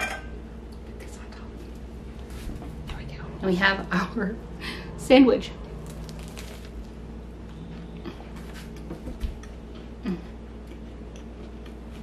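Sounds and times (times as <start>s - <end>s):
person chewing: 5.6s - 12.0s.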